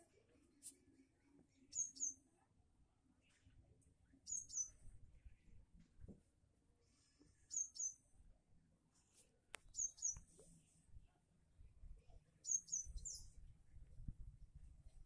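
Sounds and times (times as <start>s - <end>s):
small bird chirping: 1.7s - 2.3s, 4.2s - 4.8s, 7.5s - 8.1s, 9.6s - 10.3s, 12.4s - 13.4s.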